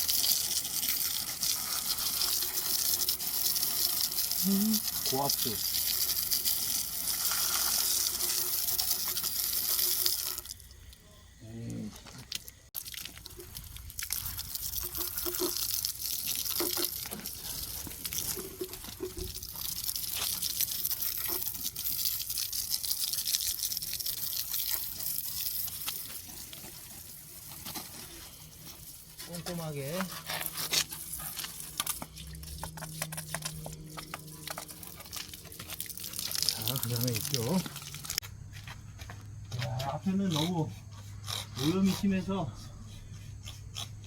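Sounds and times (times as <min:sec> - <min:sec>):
high-pressure water spray hissing: 0:00.0 - 0:10.5, 0:14.1 - 0:38.2.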